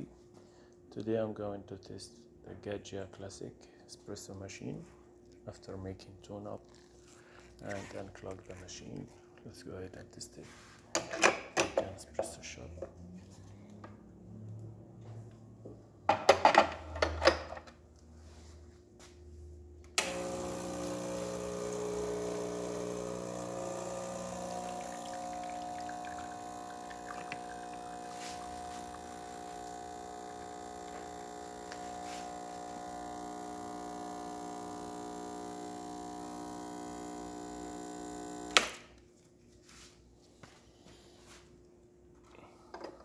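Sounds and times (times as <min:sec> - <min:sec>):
espresso pump buzzing: 0:20.0 - 0:38.8.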